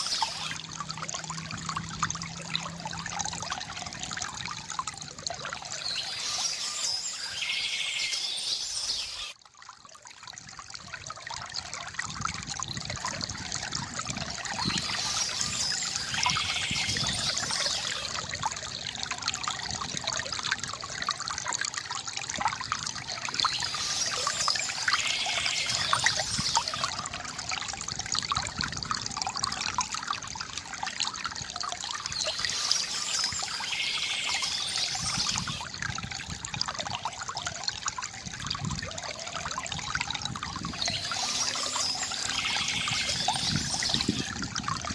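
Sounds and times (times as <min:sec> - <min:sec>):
water trickling from fountain: 0:00.0 - 0:44.9
birds chirping: 0:05.8 - 0:09.4, 0:14.6 - 0:18.1, 0:23.5 - 0:26.9, 0:32.2 - 0:35.6, 0:40.7 - 0:44.3.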